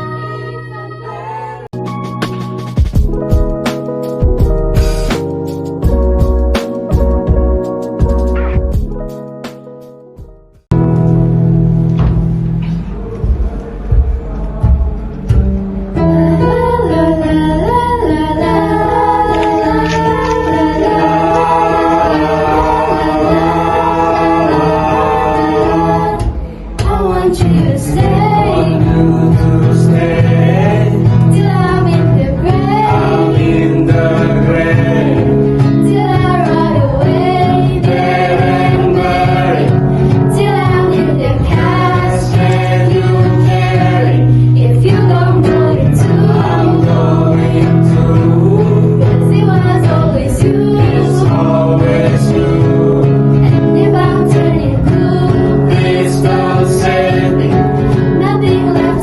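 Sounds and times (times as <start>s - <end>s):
sustained low notes: 10.2s - 58.7s
vocal group singing pop ballad: 14.0s - 59.0s.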